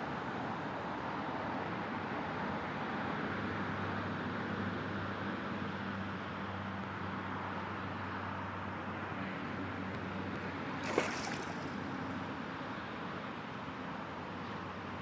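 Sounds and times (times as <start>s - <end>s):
wind: 0.0s - 15.0s
water noise: 10.7s - 12.2s.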